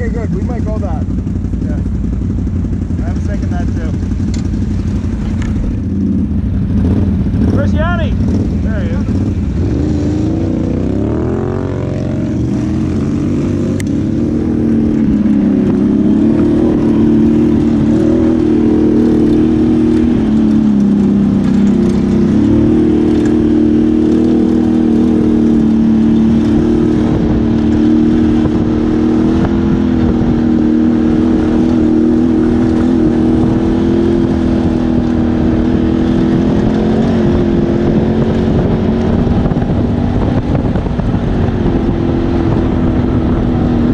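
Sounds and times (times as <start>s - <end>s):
atv engine running: 0.0s - 43.9s.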